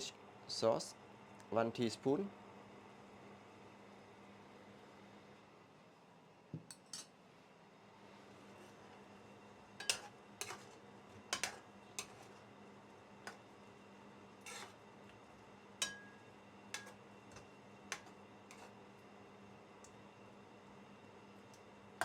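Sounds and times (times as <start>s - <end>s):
faint steady hum: 0.0s - 22.0s
metal spoon clinking on pot: 9.8s - 10.7s, 11.3s - 12.2s, 15.8s - 17.0s.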